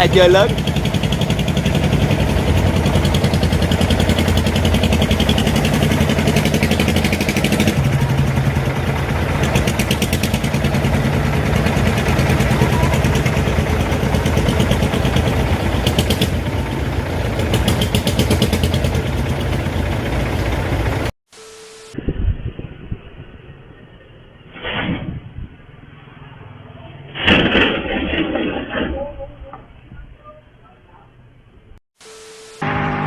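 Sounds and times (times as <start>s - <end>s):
truck engine pulsing: 0.0s - 21.1s.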